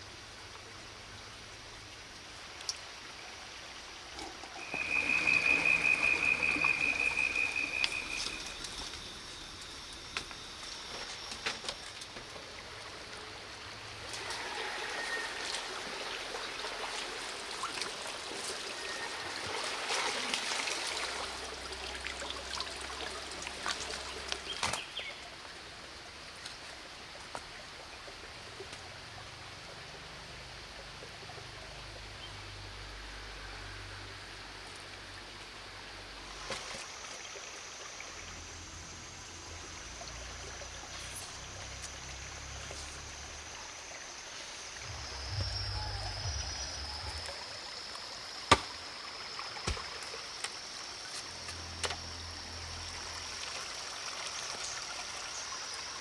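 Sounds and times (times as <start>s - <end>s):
water running and trickling: 0.4s - 32.9s, 34.5s - 56.0s
small splashes and clicks: 2.1s - 2.9s
high-pitched whine: 44.7s - 48.2s.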